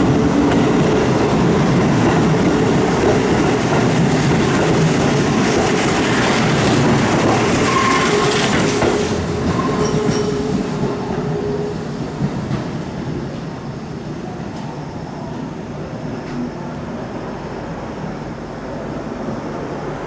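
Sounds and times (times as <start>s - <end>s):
train wheels clattering on rails: 0.0s - 16.6s
wheel squeal: 7.4s - 10.7s.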